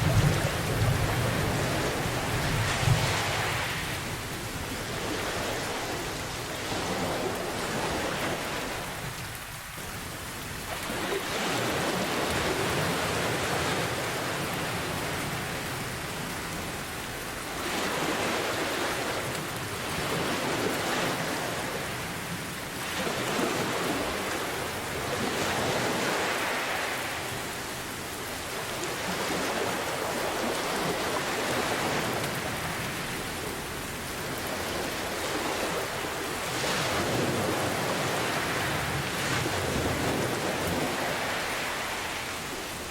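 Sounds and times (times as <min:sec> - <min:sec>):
ocean waves: 0:00.0 - 0:42.9
steady rain: 0:00.0 - 0:42.9.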